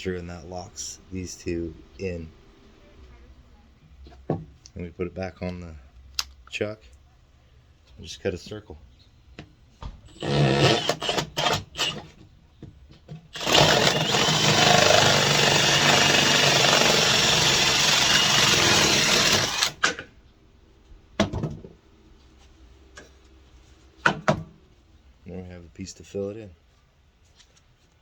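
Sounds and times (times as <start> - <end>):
drill cutting through drywall: 10.1 - 12.1, 13.3 - 20.0.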